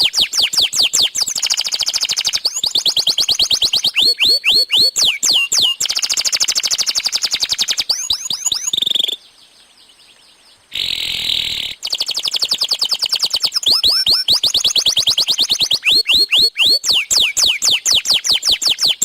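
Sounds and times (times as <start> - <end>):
canary singing: 0.0 - 19.0.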